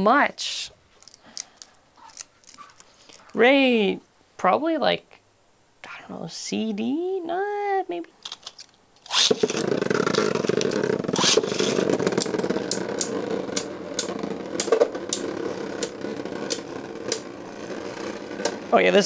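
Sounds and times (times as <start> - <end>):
spinning tops launched: 9.0 - 18.8
spinning tops clacking: 9.1 - 18.8
spinning tops rattling whir: 9.1 - 19.0.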